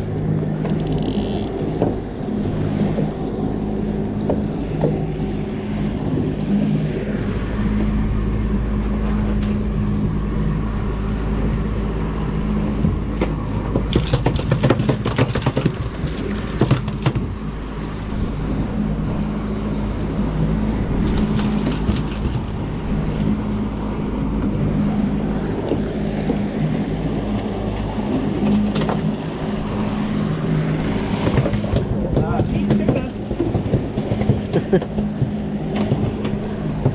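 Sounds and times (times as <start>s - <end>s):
boat engine rumbling: 0.0s - 36.9s
rapid clattering: 13.7s - 17.4s.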